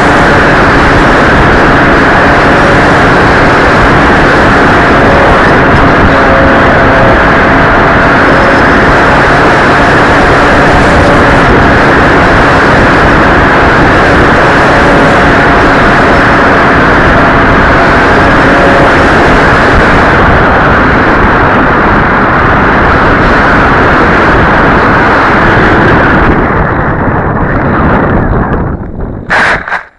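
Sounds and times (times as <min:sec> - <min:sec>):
faint model plane motor whine: 0:00.0 - 0:21.5
wind rushing over microphone: 0:00.0 - 0:29.9.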